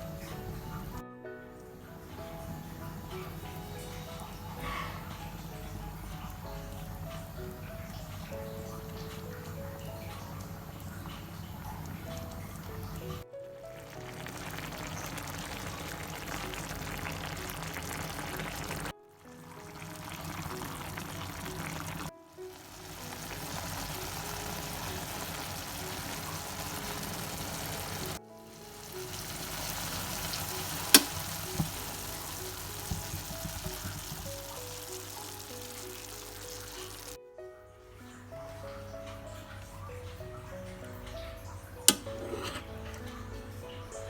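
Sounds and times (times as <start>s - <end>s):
background music: 0.0s - 44.0s
food sizzling in a pan: 13.8s - 37.2s.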